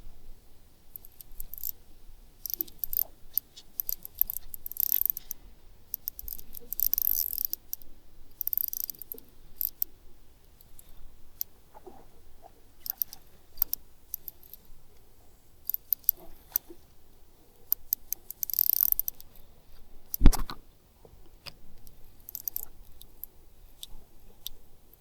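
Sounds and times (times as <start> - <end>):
sharp high clicking and rattling: 2.4 - 7.8, 8.4 - 9.9, 12.9 - 14.6, 17.7 - 19.3, 22.2 - 23.1.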